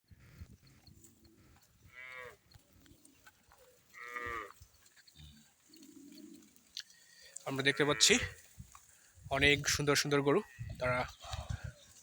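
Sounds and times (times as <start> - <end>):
cow mooing: 1.9 - 2.4, 3.9 - 4.6, 7.6 - 8.4.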